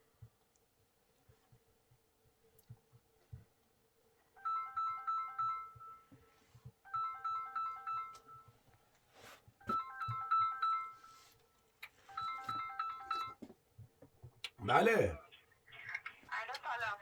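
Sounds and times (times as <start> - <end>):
mobile phone ringtone: 4.4 - 6.2, 6.9 - 8.6, 9.7 - 11.4, 12.0 - 13.4.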